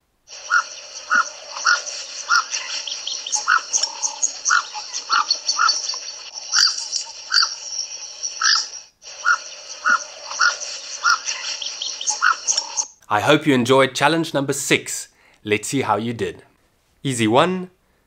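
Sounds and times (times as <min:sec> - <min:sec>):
high chirring background: 0:00.3 - 0:13.3.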